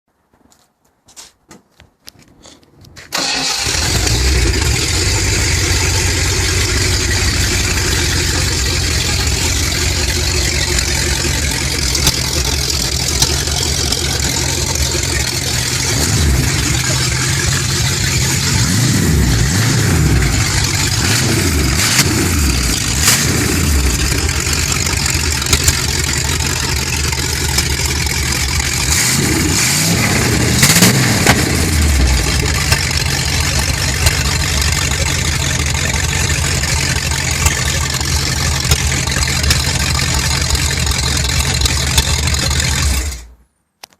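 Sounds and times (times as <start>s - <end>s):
engine starting up: 3.1s - 43.4s
engine revving: 3.2s - 43.3s
loud lumpy engine idle: 3.5s - 43.3s.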